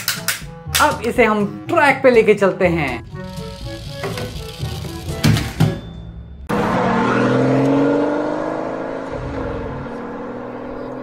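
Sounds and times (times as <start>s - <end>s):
car engine revving: 6.5s - 11.0s.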